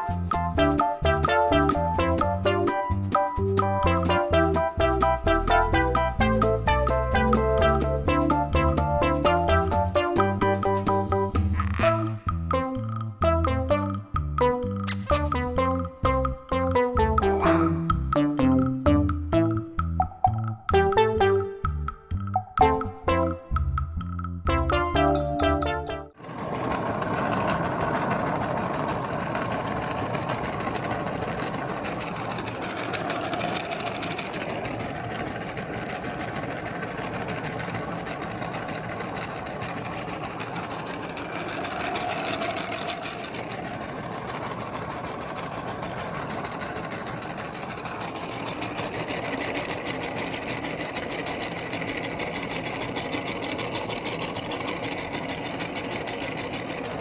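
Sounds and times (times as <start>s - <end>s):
electric meat grinder whirring: 26.2s - 57.0s.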